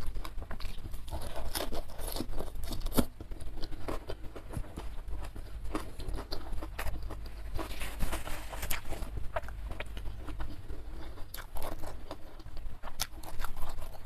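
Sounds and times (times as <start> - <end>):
crisp chewing crunches: 0.0 - 14.0.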